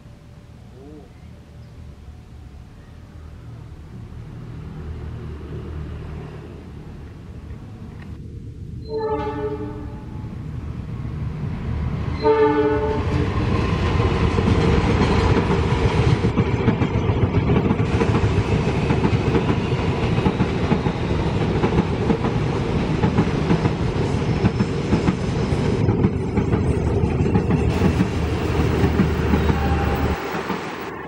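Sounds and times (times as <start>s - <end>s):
train horn blast: 8.8s - 10.3s, 12.2s - 13.4s, 29.2s - 30.4s.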